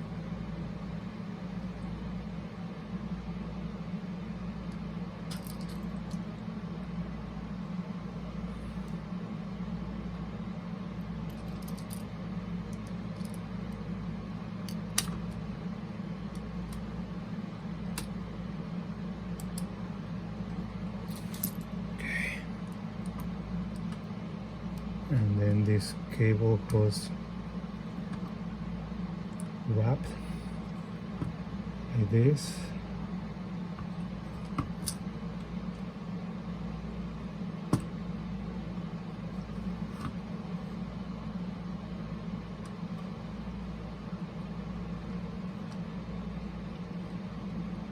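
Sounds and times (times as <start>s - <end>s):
steady low hum: 0.0s - 47.9s
small parts and tools clicking: 5.3s - 6.2s.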